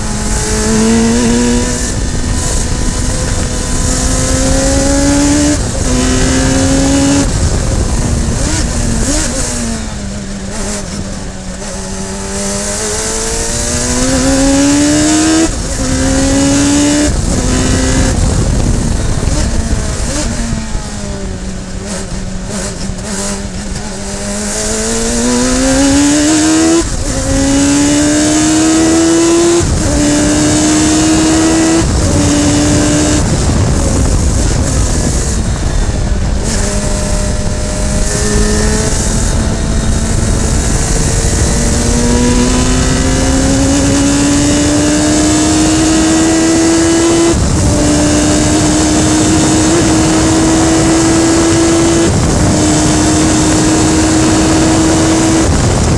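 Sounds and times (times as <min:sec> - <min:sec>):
race car engine revving: 0:00.0 - 0:55.9.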